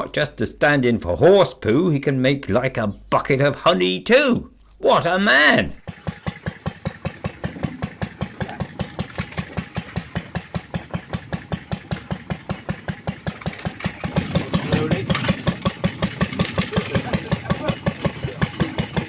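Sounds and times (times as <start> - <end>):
single-cylinder engine running: 5.8 - 19.0.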